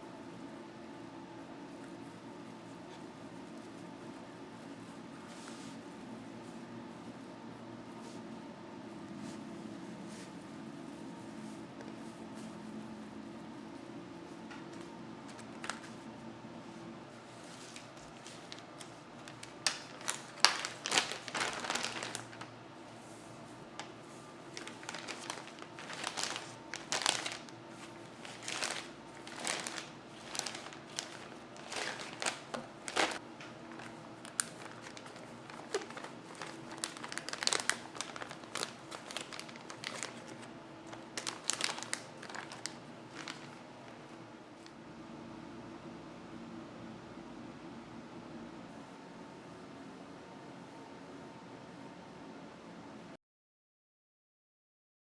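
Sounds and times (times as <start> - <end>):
wrapping material crinkling: 8.9 - 16.1, 17.2 - 44.0.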